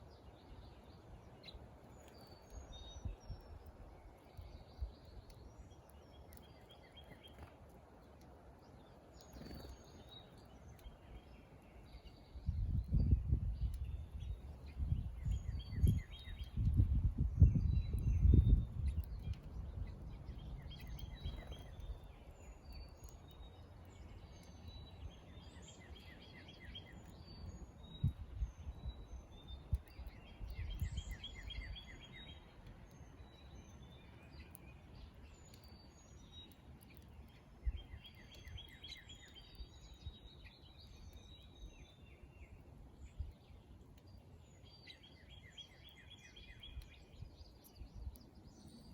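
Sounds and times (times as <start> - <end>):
songbirds singing: 0.0 - 48.9.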